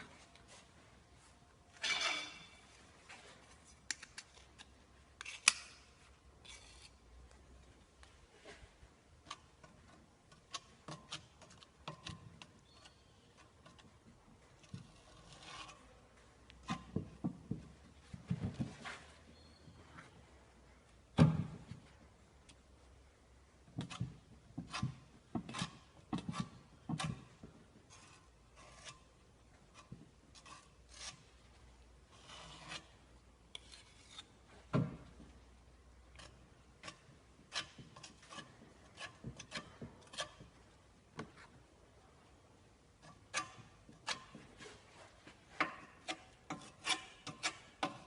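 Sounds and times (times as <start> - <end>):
hand tool scraping a surface: 14.6 - 15.9, 24.6 - 31.4, 32.1 - 34.5, 36.1 - 40.5, 43.0 - 48.0.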